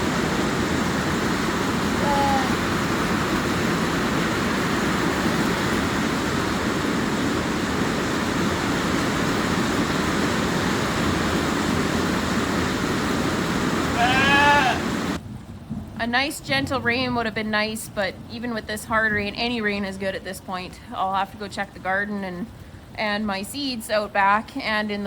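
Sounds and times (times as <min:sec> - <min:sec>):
hard rain falling: 0:00.0 - 0:19.3
short pitched call: 0:14.0 - 0:14.9.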